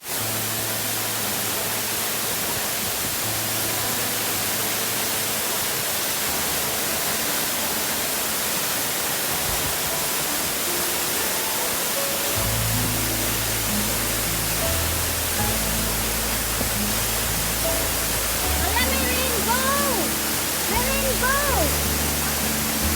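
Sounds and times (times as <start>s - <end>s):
waterfall rushing: 0.0s - 22.9s
low music notes: 9.3s - 22.9s.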